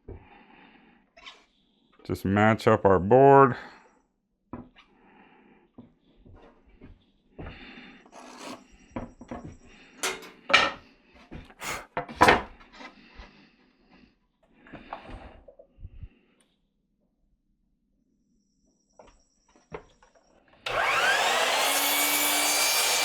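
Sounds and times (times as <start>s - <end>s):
wooden boards scraping: 8.1s - 8.6s.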